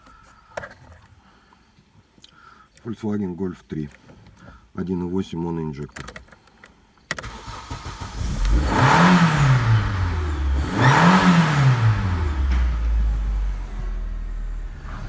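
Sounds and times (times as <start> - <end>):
car engine starting and revving: 7.2 - 15.0.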